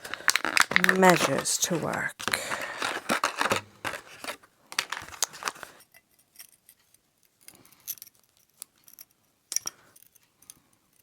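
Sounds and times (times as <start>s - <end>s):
small hard objects clicking: 0.0s - 5.7s.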